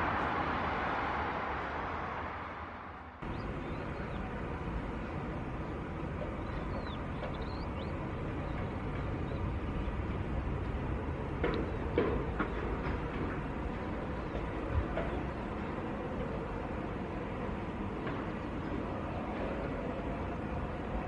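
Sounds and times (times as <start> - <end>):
jet engines rumbling: 0.0 - 21.0
birds chirping: 3.2 - 10.3.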